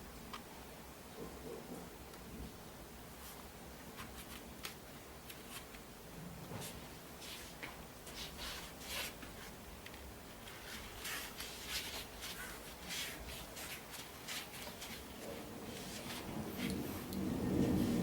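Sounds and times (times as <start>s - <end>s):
rustling and scraping: 3.2s - 5.8s, 6.4s - 18.0s.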